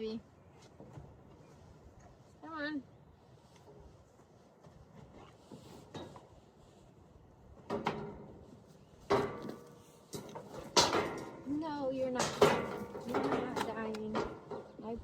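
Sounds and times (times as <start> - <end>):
sharp knocks and clatters: 7.6 - 14.9.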